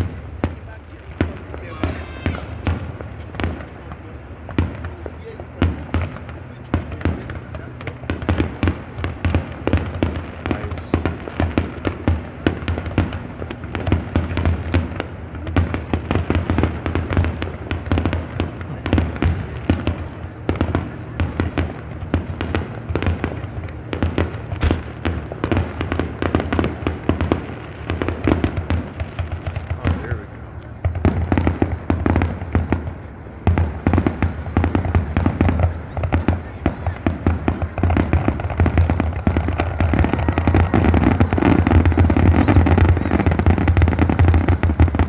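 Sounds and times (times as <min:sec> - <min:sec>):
fireworks bangs: 0:00.0 - 0:29.7.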